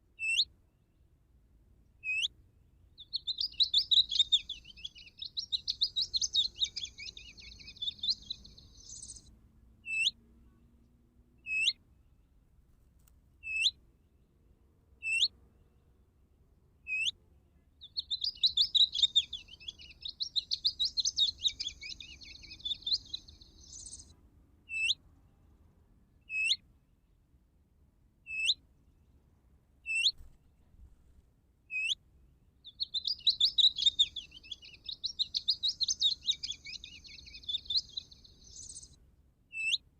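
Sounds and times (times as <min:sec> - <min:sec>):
electronic bird caller song: 0:03.0 - 0:09.2, 0:17.8 - 0:24.1, 0:32.7 - 0:38.9.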